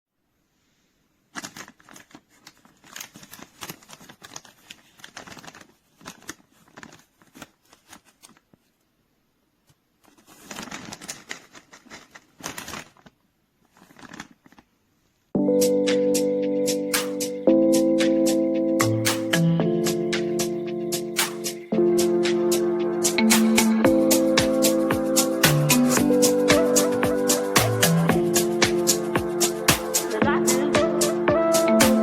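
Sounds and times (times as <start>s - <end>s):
packaging bag crinkling: 1.3s - 8.7s, 10.0s - 14.7s.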